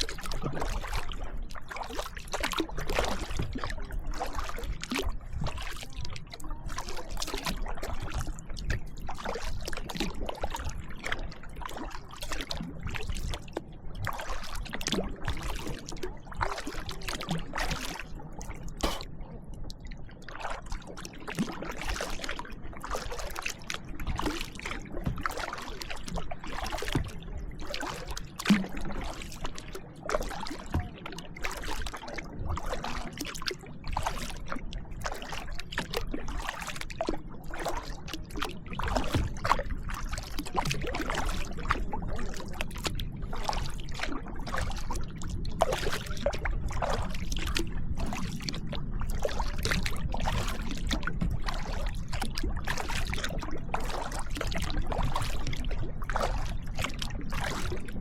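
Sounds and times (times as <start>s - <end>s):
kayak paddle splashing: 0.0s - 58.0s
water dripping off paddle: 6.8s - 29.4s.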